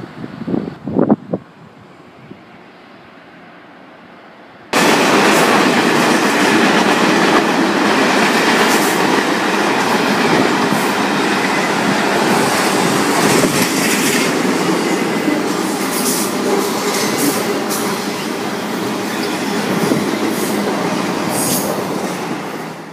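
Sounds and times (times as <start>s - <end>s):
train wheels on rail: 4.7s - 22.9s.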